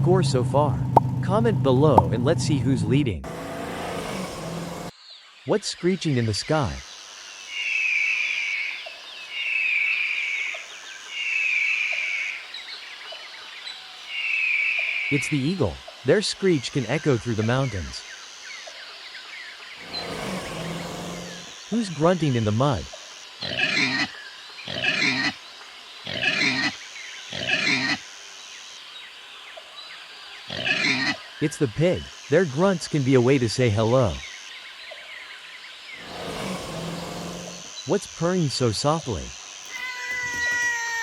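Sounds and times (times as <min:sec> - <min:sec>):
eagle screeching: 0:19.8 - 0:21.5, 0:26.1 - 0:28.0, 0:30.5 - 0:31.2, 0:39.6 - 0:41.0
pig grunting: 0:19.8 - 0:21.5, 0:23.4 - 0:24.1, 0:24.7 - 0:25.4, 0:26.0 - 0:28.0, 0:30.5 - 0:31.2, 0:36.0 - 0:37.7.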